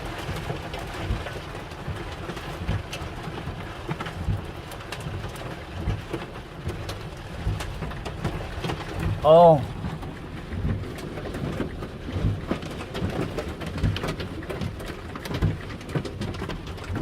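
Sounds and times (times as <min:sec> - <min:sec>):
hailstones ticking on hard surfaces: 0:00.0 - 0:17.0
heavy rain hiss: 0:09.2 - 0:09.9.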